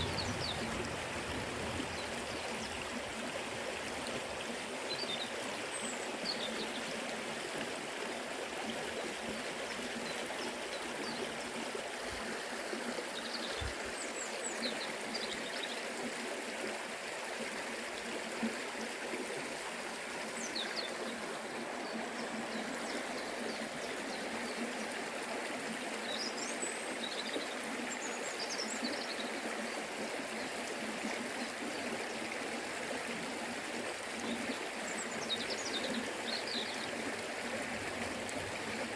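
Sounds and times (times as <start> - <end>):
river water rushing: 0.0 - 6.3, 31.6 - 38.9.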